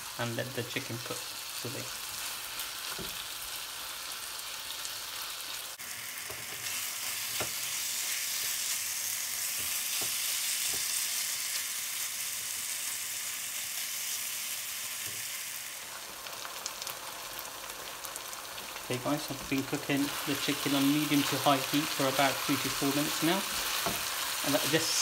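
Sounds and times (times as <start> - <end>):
food sizzling in a wok: 0.0 - 25.0
spatula scraping and tapping pan: 23.5 - 24.1.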